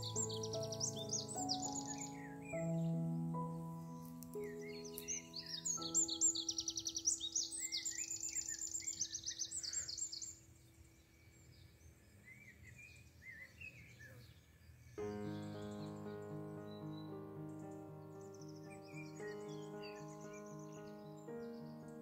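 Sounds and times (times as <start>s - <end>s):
background music: 0.0s - 7.6s, 15.0s - 22.0s
bird chirping: 0.0s - 22.0s.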